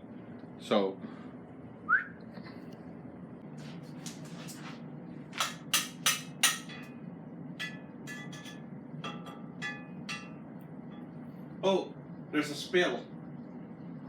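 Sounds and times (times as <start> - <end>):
low hum: 0.0 - 14.0
utensil knocking against pot: 5.4 - 6.9, 7.6 - 11.1.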